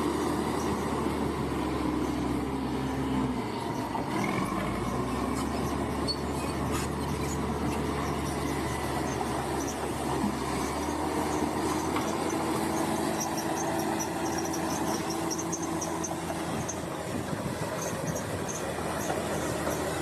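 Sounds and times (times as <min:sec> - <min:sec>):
bulldozer diesel engine running: 0:00.0 - 0:20.0
tracks squealing and clanking: 0:05.2 - 0:16.9.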